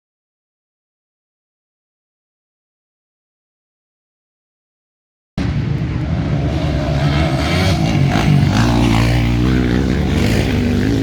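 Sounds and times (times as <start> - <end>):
motocross engines revving: 5.9 - 11.0.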